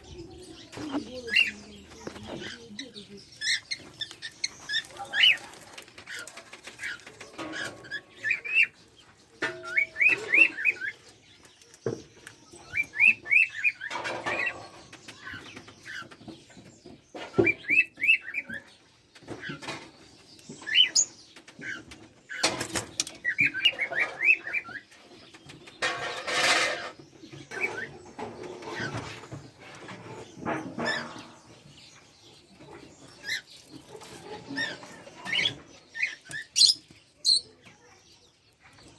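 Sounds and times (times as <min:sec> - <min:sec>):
parrots chirping: 0:25.8 - 0:38.0.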